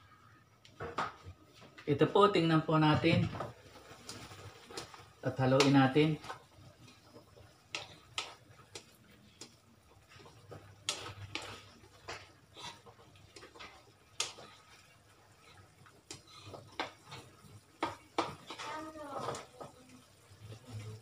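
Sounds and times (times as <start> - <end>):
spatula scraping a metal wok: 10.9 - 19.4.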